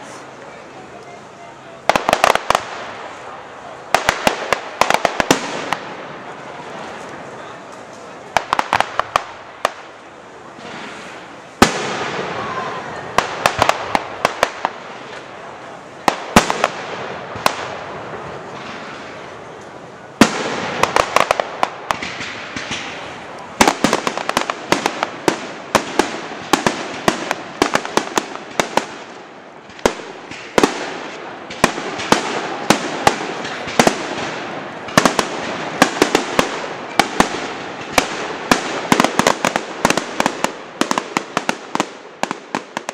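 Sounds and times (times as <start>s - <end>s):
fireworks bangs: 0.0s - 42.9s
fireworks crackling and popping: 0.0s - 42.9s.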